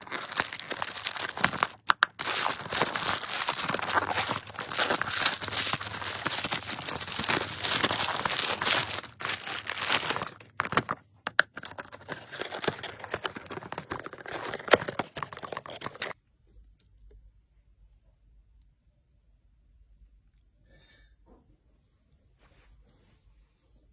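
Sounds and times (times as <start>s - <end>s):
wrapping crinkling and rustling: 0.0s - 16.2s.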